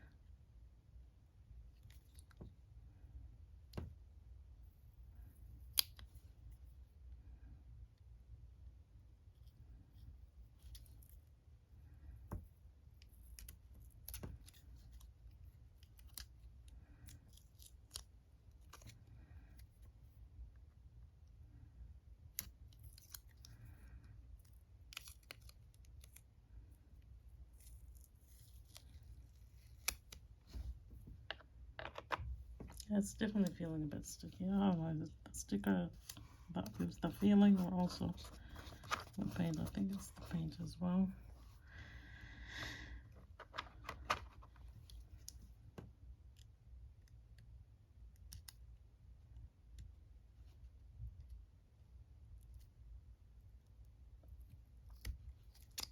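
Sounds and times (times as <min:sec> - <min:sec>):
small clicks and rustles: 0:22.3 - 0:33.6, 0:53.4 - 0:55.9.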